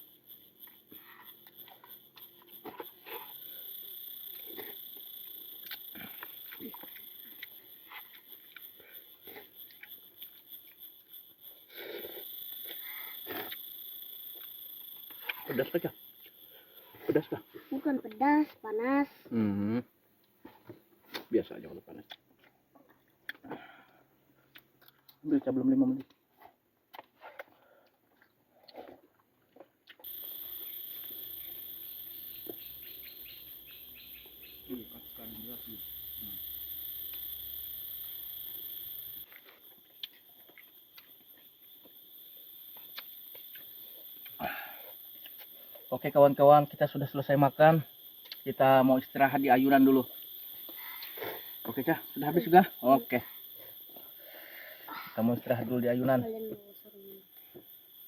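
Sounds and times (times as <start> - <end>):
shrill insect chorus: 0.0 - 19.8, 29.9 - 58.0
steady high-pitched hum: 0.0 - 19.8, 30.0 - 58.0
chewing: 4.3 - 10.8, 24.4 - 25.2, 26.0 - 31.1, 39.3 - 42.0.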